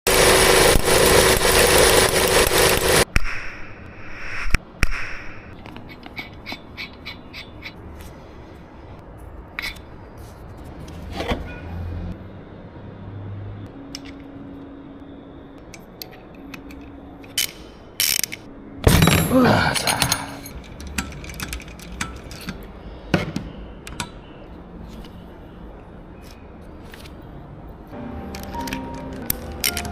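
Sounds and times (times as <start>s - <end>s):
sharp clicks and rattles: 0.1s - 3.0s, 20.4s - 22.6s.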